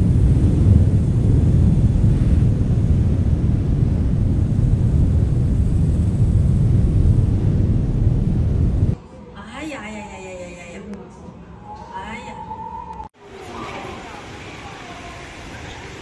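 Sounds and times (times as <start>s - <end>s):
wind and road noise in a car: 0.0s - 9.0s.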